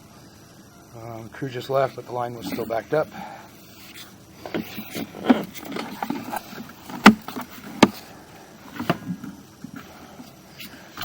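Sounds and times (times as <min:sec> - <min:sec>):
sharp knocks: 0:07.0 - 0:08.0.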